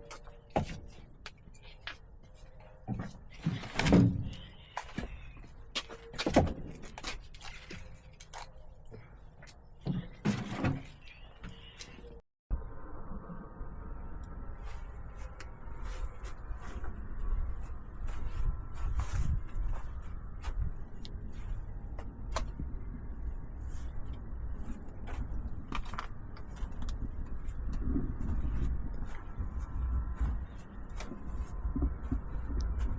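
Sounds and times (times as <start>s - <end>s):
steady low rumble: 12.5s - 32.9s.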